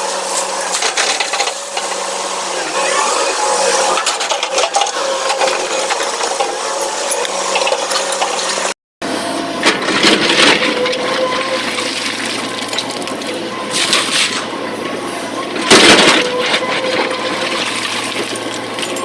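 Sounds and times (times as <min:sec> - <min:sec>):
excavator running: 0:00.0 - 0:19.0.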